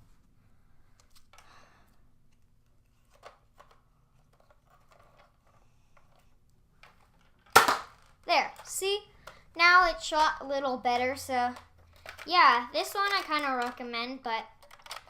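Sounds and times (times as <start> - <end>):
toy blaster firing pop: 7.5 - 8.0
toy blaster handling clicks: 14.6 - 15.0.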